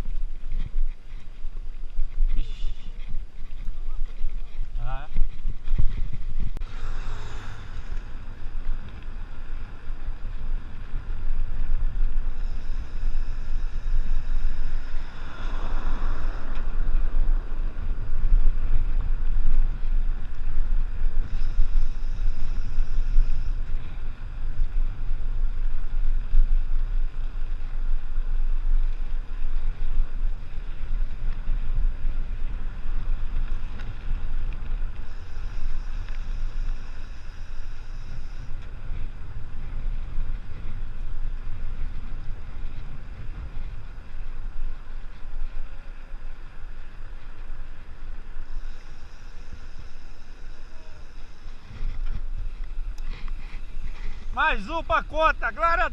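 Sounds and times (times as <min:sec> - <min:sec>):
wind buffeting microphone: 0:00.0 - 0:55.9
faint high hiss: 0:44.4 - 0:55.9.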